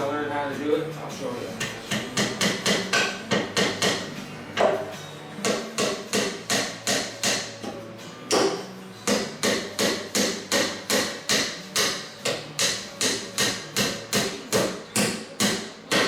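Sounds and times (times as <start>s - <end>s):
hammer driving nails into wood: 8.3s - 16.0s.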